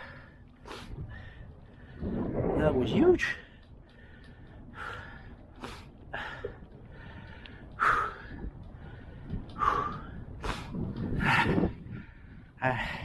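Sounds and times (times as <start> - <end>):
man breathing hard: 3.6 - 13.0.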